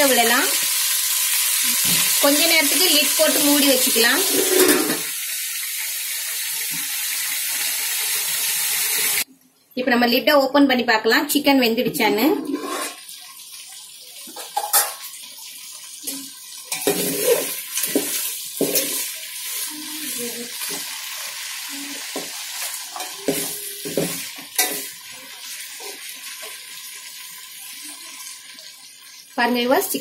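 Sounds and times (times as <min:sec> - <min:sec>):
meat sizzling in a pot: 0:00.0 - 0:09.3, 0:12.5 - 0:30.0
metal spoon scraping a pot: 0:04.2 - 0:05.1, 0:12.3 - 0:13.1, 0:16.7 - 0:19.7.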